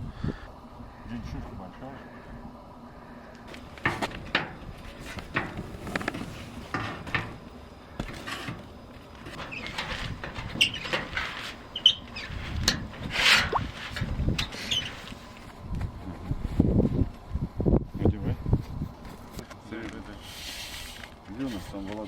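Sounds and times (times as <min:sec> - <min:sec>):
short high squeaks: 0:11.7 - 0:12.4, 0:14.5 - 0:15.1.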